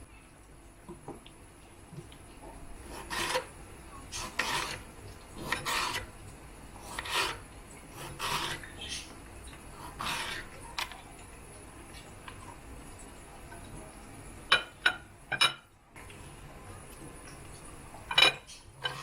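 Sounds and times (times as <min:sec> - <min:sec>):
rasping scraping strokes: 0:02.8 - 0:03.5, 0:04.1 - 0:04.8, 0:05.4 - 0:06.1, 0:06.8 - 0:07.4, 0:08.0 - 0:08.7, 0:09.8 - 0:10.6.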